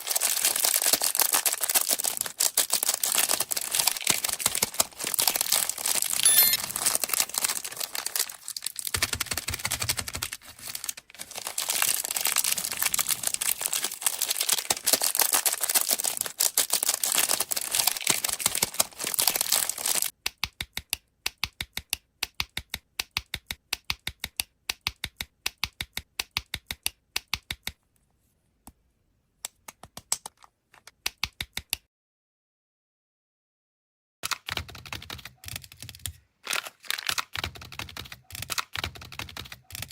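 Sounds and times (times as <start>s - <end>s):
plastic wrapper crinkling and tearing: 0.0s - 20.1s, 36.4s - 37.3s.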